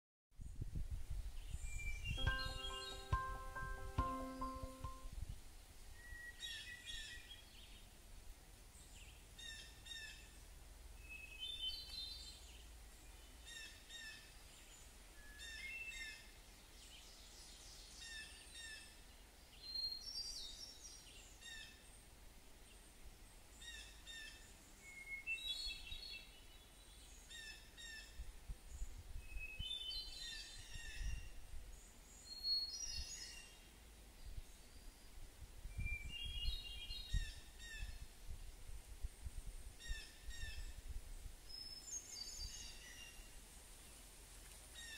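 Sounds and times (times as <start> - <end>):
birds chirping: 2.1 - 5.0.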